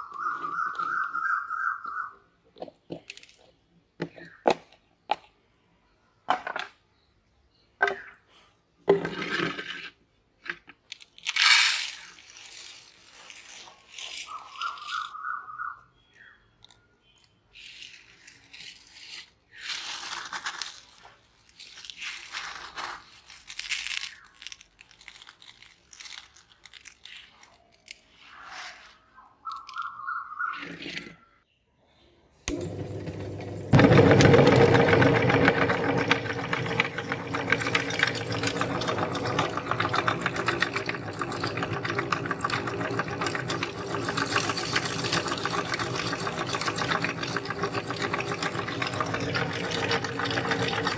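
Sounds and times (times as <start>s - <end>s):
candy crunching in grinder: 10.8s - 15.2s, 17.5s - 29.0s, 32.5s - 50.9s.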